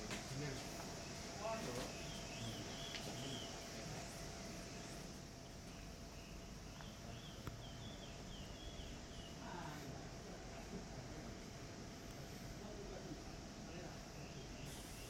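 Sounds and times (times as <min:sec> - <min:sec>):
faint steady hum: 0:00.0 - 0:15.0
high insect-like hiss: 0:00.0 - 0:15.0
small bird chirping: 0:05.7 - 0:09.5.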